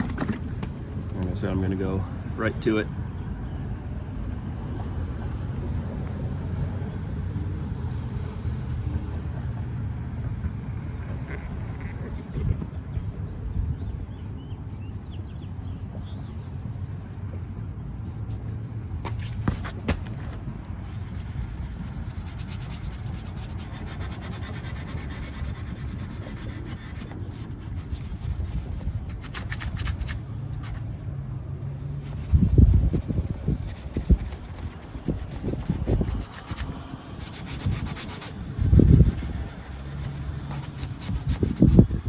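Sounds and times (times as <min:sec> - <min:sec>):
hand rubbing metal with polish: 0:20.4 - 0:42.0.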